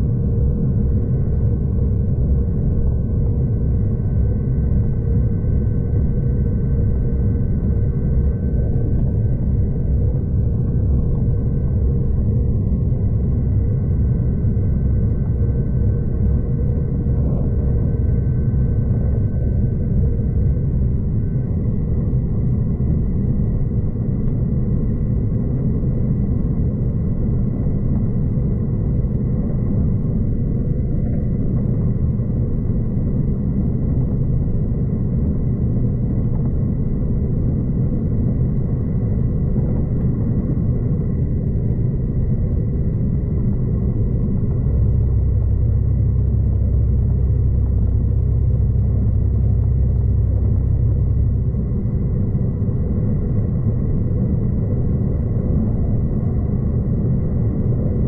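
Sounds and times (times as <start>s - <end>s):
deeper louder rumble: 0.0s - 58.0s.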